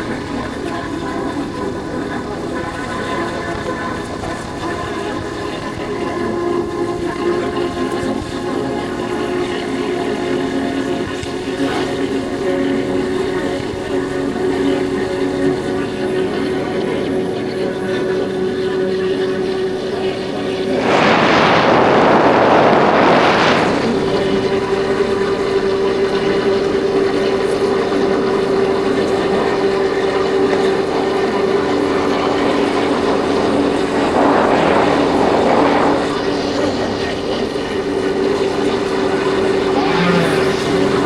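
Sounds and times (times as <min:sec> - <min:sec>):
wind noise on microphone: 0:18.8 - 0:41.0.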